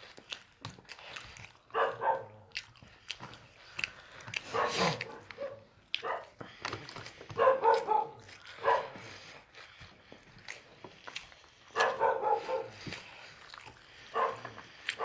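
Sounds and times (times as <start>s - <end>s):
dog barking and whining: 1.7s - 2.5s, 4.5s - 6.4s, 7.4s - 9.0s, 11.7s - 12.8s, 14.1s - 15.0s.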